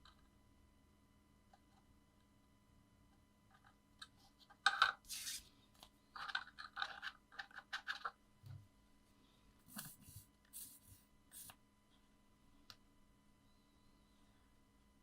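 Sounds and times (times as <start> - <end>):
paper rustling and scraping: 9.7 - 11.5.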